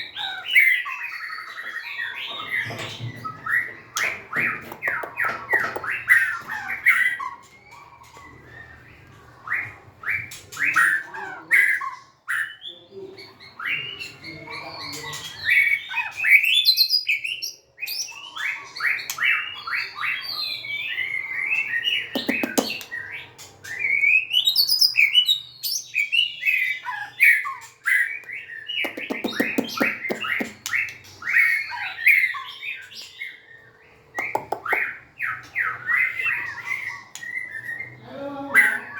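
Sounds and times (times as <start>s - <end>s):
harsh buzzy bird calls: 21.0s - 23.9s, 26.5s - 38.9s.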